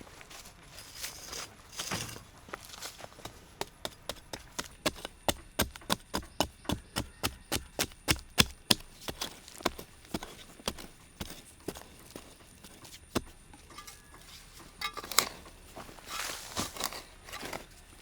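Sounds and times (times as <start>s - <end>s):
wood being chopped: 3.1s - 13.7s
soft rustling: 8.7s - 18.0s.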